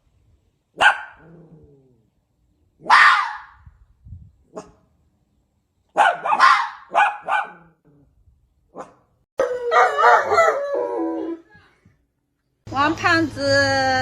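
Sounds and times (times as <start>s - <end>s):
dog barking: 0.8s - 1.2s, 2.8s - 3.6s, 4.5s - 4.8s, 5.9s - 7.7s, 8.7s - 10.6s.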